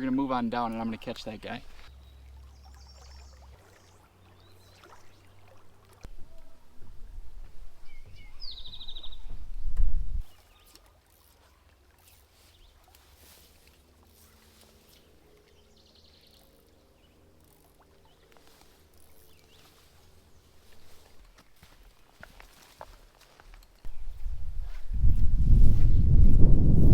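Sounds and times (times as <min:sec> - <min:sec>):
quiet outdoor ambience: 0:00.0 - 0:26.9
low rumble on microphone: 0:06.1 - 0:10.3, 0:23.9 - 0:26.9.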